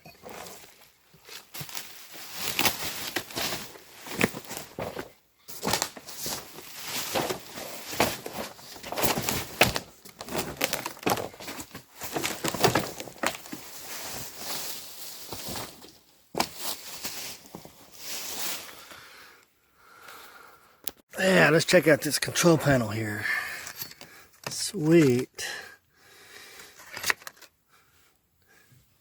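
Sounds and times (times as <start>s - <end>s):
packaging rustling and crinkling: 0.2s - 18.8s.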